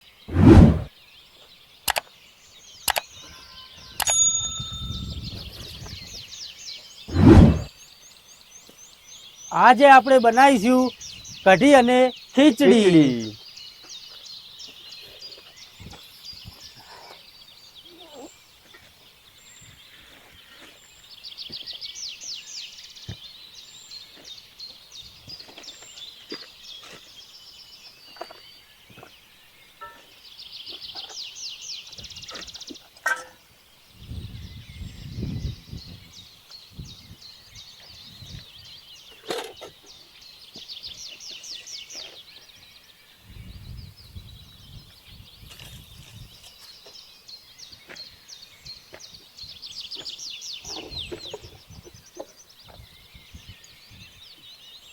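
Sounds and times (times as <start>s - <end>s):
bird chirps: 0.1s - 54.9s
small clicks: 1.9s - 2.1s, 2.9s - 3.1s.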